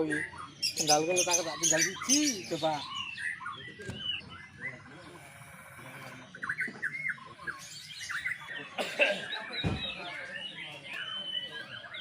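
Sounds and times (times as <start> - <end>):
bird singing whistled phrases: 9.5 - 12.0.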